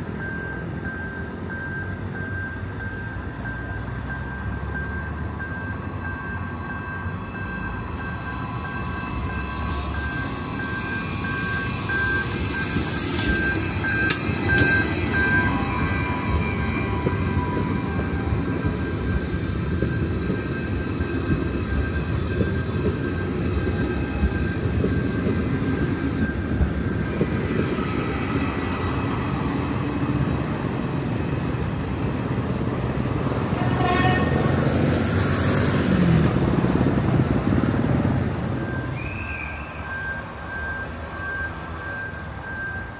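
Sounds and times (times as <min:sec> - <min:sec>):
steady high tone: 0:06.0 - 0:26.9
train rolling past: 0:06.0 - 0:42.9.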